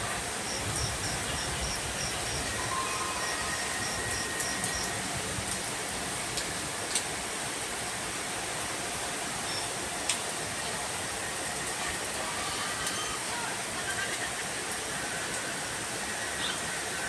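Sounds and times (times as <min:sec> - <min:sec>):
raindrops ticking on hard surface: 0:00.0 - 0:07.7, 0:08.5 - 0:11.8
steady rain falling: 0:00.0 - 0:17.0.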